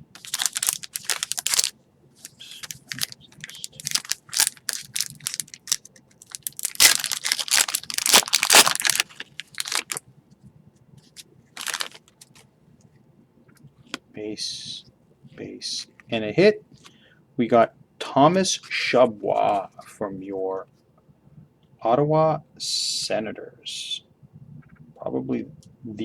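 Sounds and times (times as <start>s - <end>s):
foil wrapper tearing and crinkling: 0.1s - 10.0s, 11.6s - 12.4s.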